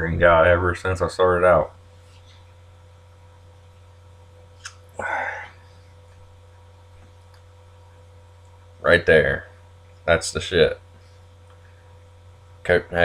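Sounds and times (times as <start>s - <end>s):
electrical hum: 0.0s - 13.0s
breathy burst into microphone: 5.0s - 5.7s.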